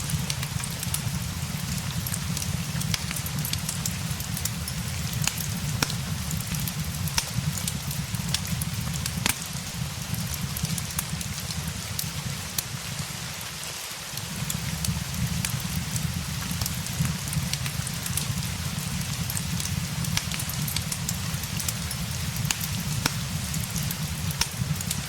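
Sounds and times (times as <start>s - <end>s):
steady rain: 0.0s - 25.0s
wood fire crackling: 0.0s - 25.0s.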